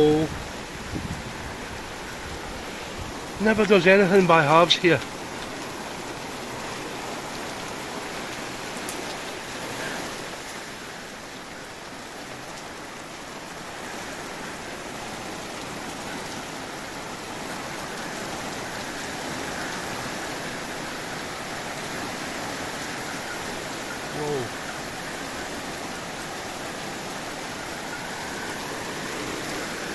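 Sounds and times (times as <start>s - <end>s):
heavy rain pouring: 0.0s - 29.9s.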